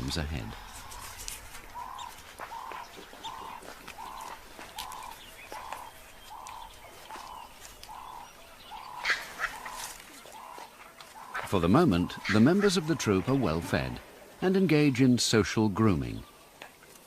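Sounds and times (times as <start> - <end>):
bird hooting call: 0.6 - 11.5.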